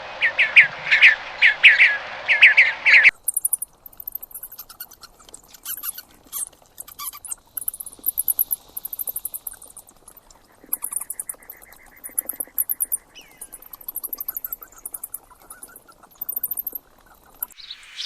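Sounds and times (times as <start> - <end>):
bird chirping: 0.2 - 18.0
small animal high-pitched squeaks: 3.3 - 17.6.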